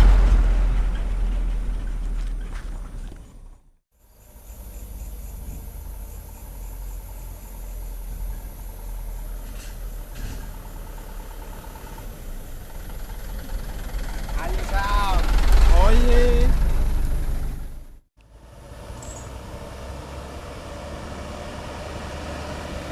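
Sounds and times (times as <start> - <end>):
truck engine idling: 5.0 - 18.0.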